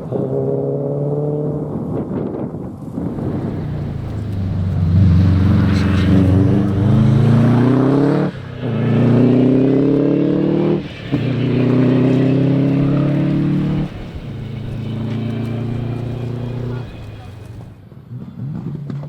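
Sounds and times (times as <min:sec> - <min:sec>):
rally car accelerating: 0:03.0 - 0:17.8.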